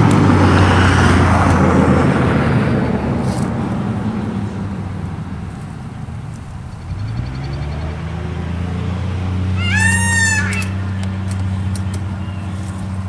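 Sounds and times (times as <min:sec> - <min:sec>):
low hum: 0:04.0 - 0:13.0
drawn-out animal call: 0:09.3 - 0:11.3.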